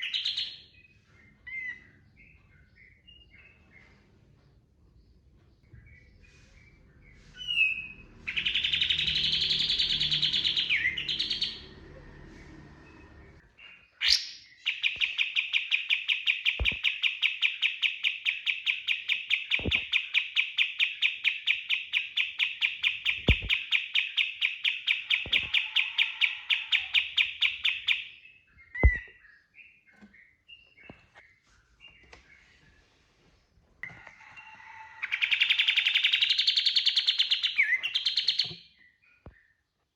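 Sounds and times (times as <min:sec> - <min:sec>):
bird singing harsh and trilling: 0:00.0 - 0:03.6, 0:07.4 - 0:12.7, 0:13.5 - 0:31.2, 0:35.1 - 0:39.3.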